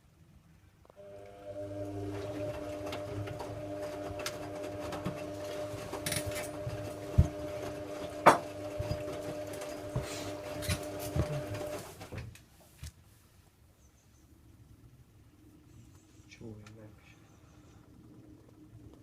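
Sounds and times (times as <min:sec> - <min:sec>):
washing machine motor humming: 0:01.0 - 0:12.3.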